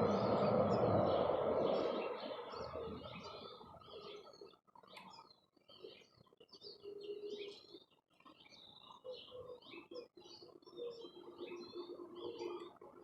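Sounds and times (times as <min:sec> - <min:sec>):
low held bird notes: 0:00.0 - 0:04.3
songbirds chirping: 0:00.0 - 0:13.0.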